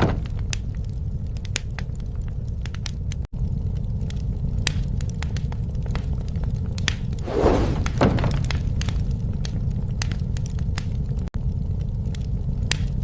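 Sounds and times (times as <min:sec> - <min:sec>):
low rumble of flames: 0:00.0 - 0:13.0
wood crackling and popping: 0:00.0 - 0:13.0
hissing fire flare: 0:07.1 - 0:10.1.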